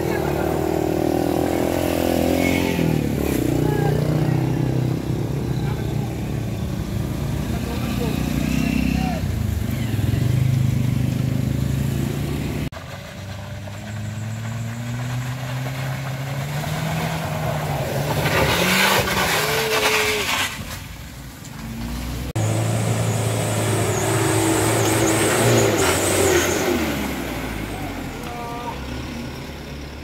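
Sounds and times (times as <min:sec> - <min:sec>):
car engine climbing a slope: 0:00.0 - 0:30.0
tyres rushing on gravel: 0:12.8 - 0:21.8.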